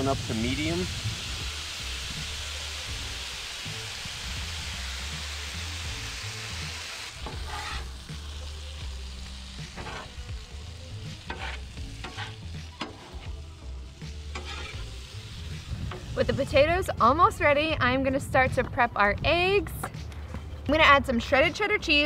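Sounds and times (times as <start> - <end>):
potatoes sizzling on griddle: 0.0 - 16.9
background music with bass: 0.0 - 22.0
metal spatula scraping steel: 7.2 - 7.9, 9.7 - 10.2, 11.2 - 13.4, 14.2 - 15.0.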